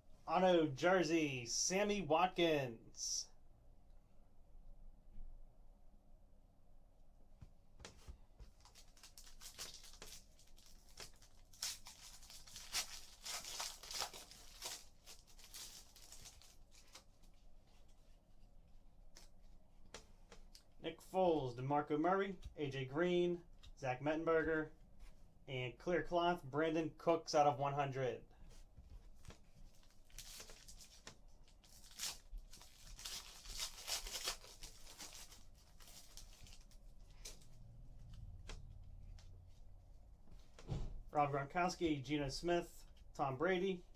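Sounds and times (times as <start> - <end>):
wrapper tearing and crinkling: 8.6 - 17.3, 29.7 - 37.5
cards being handled: 28.5 - 37.5.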